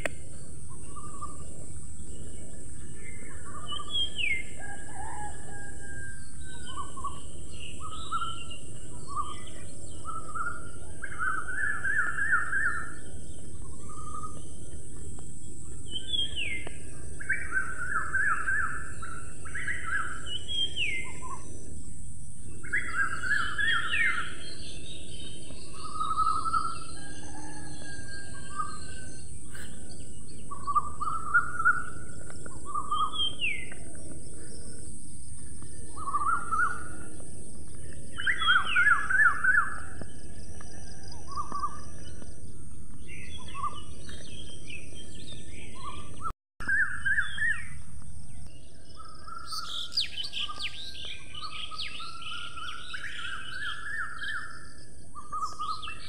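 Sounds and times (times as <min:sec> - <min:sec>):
steady background hiss: 0:00.0 - 0:40.4
songbirds calling: 0:00.0 - 0:56.0
bird trills: 0:22.5 - 0:42.2, 0:43.0 - 0:56.0.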